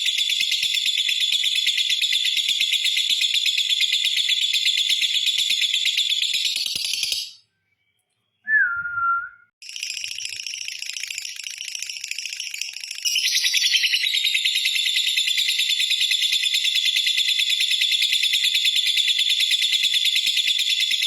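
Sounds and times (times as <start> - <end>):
short falling whistled note: 8.5 - 9.5.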